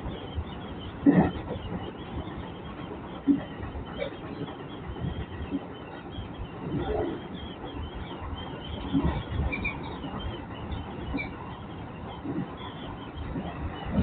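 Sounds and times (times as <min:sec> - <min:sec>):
electric train rumbling: 0:00.0 - 0:14.0
high squeaks: 0:08.8 - 0:11.7.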